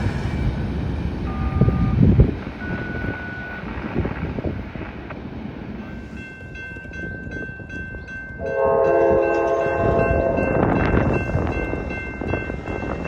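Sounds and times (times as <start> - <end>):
rumble of passing train: 0.0 - 13.0
locomotive air horn blast: 8.4 - 10.5.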